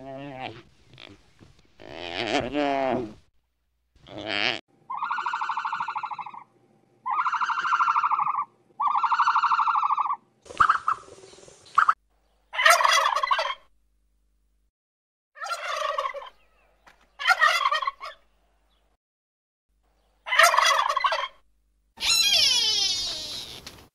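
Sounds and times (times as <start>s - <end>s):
turkeys gobbling: 4.9s - 6.5s, 7.1s - 11.2s, 12.6s - 13.6s, 15.4s - 16.4s, 17.2s - 18.2s, 20.3s - 21.4s
buzzy calls: 22.0s - 23.7s.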